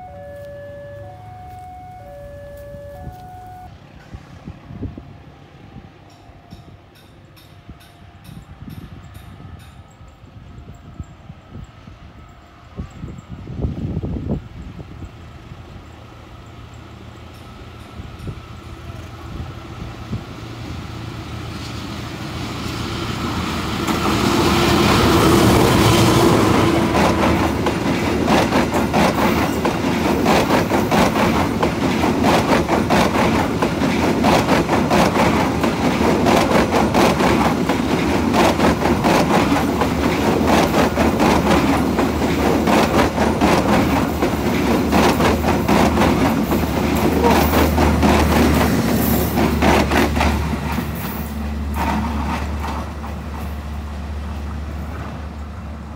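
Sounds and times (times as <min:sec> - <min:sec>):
low train engine hum: 0:00.0 - 0:55.9
train wheels clattering on rails: 0:06.0 - 0:11.7, 0:15.8 - 0:19.4, 0:21.4 - 0:55.5.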